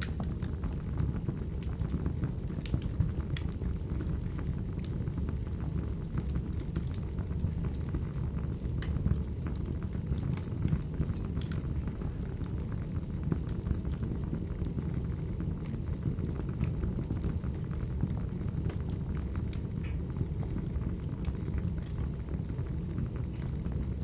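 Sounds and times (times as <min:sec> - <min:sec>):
burning logs crackling and popping: 0:00.0 - 0:24.0
low rumble of flames: 0:00.0 - 0:24.0.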